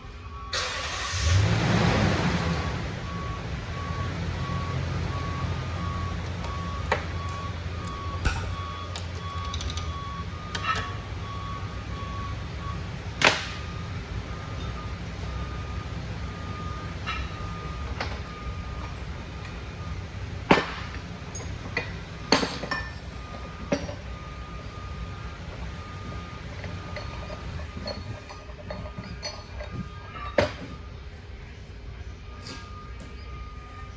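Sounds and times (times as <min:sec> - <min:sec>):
vehicle reversing beeper: 0:00.0 - 0:33.9
metal tools clinking and knocking: 0:06.2 - 0:11.4, 0:20.5 - 0:24.3, 0:25.5 - 0:30.8.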